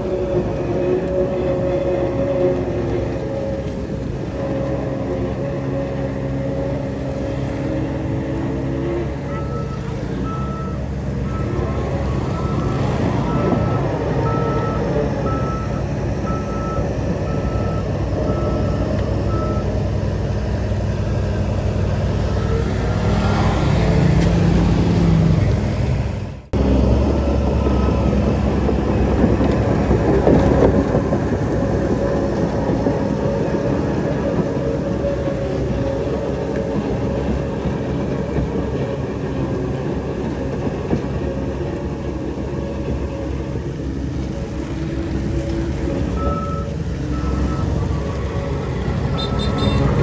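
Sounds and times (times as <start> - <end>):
heavy machinery diesel engine: 0.0 - 50.0
backup alarm beeping: 9.2 - 19.9, 46.0 - 50.0.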